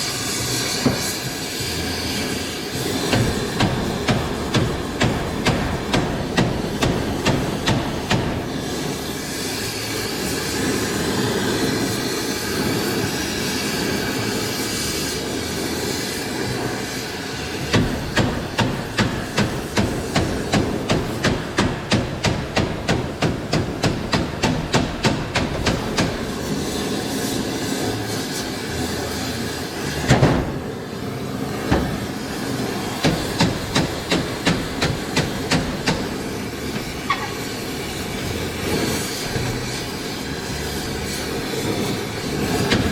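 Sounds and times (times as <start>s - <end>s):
gas torch flame hissing: 0.0s - 42.9s
hammer striking steel tube: 0.2s - 1.6s, 2.8s - 10.0s, 17.6s - 28.4s, 31.7s - 42.9s.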